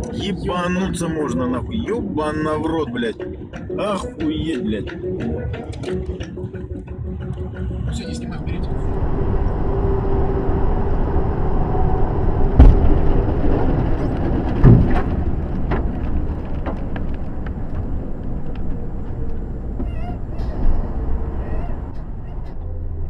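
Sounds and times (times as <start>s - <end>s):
engine and road rumble: 0.0s - 23.0s
heavy thumps: 12.6s - 13.4s.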